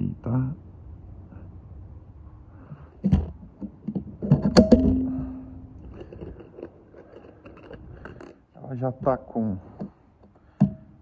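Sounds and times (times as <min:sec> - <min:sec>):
short ringing tone: 0:04.8 - 0:05.7.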